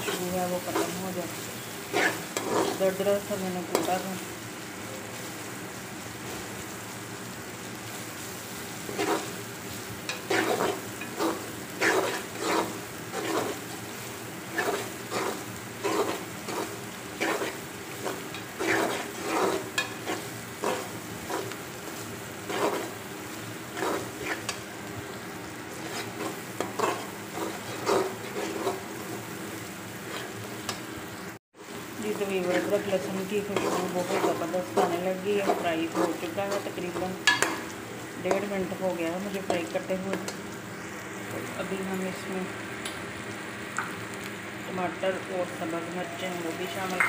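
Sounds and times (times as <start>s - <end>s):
onions sizzling in hot oil: 0.0s - 47.0s
spatula scraping a metal pot: 1.9s - 2.9s, 8.9s - 9.3s, 10.1s - 13.7s, 14.5s - 21.6s, 22.5s - 23.0s, 23.7s - 24.6s, 25.7s - 28.8s, 30.1s - 30.4s, 32.4s - 37.6s.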